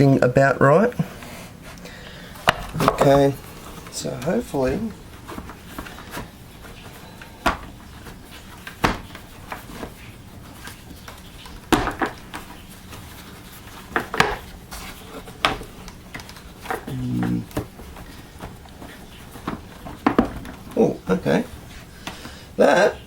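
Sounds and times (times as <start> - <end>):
plastic knocks and clicks: 19.4 - 20.8.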